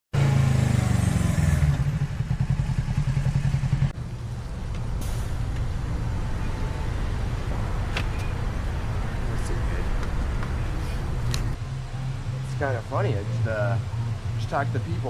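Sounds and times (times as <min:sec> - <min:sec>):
motorcycle engine running: 0:00.2 - 0:04.6.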